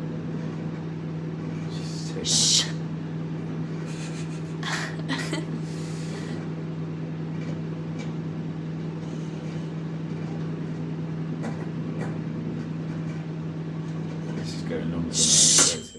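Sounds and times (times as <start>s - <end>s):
microwave oven humming: 0.0s - 15.9s.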